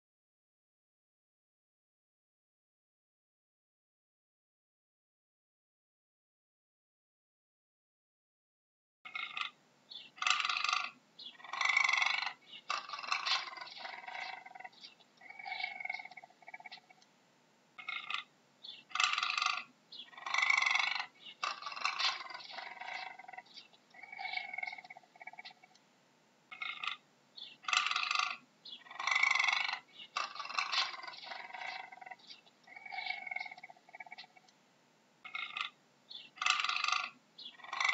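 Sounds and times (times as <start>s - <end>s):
cougar calling: 9.1s - 17.1s, 17.8s - 25.8s, 26.5s - 34.5s, 35.2s - 37.9s.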